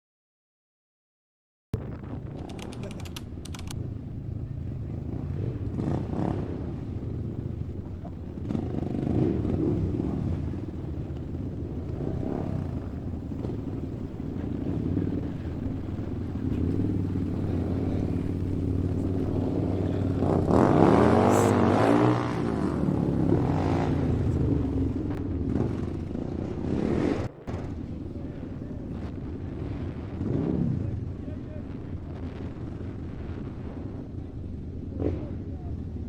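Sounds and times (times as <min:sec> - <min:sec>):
motor vehicle engine running: 0:01.8 - 0:30.3.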